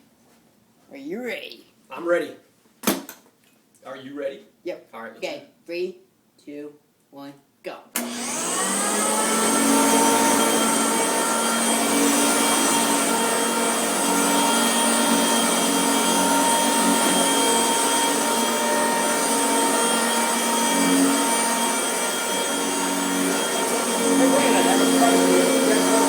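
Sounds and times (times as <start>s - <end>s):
vacuum cleaner running: 8.0s - 26.0s.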